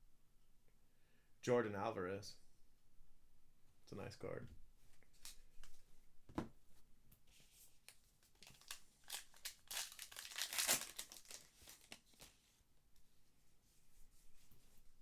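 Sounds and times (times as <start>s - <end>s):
card pack wrapper crinkling: 7.8s - 12.4s.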